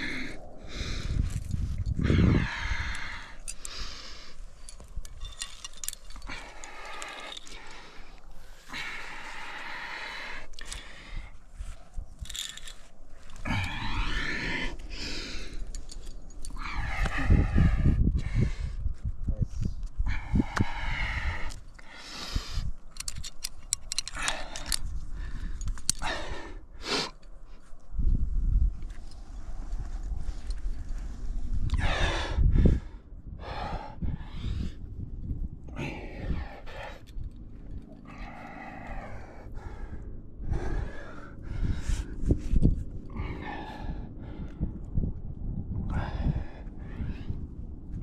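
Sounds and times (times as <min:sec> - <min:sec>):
person breathing hard and gasping: 0:00.0 - 0:11.4, 0:13.2 - 0:18.9
metal climbing gear clinking: 0:01.0 - 0:17.6, 0:19.8 - 0:27.9, 0:28.7 - 0:32.0, 0:33.8 - 0:44.8.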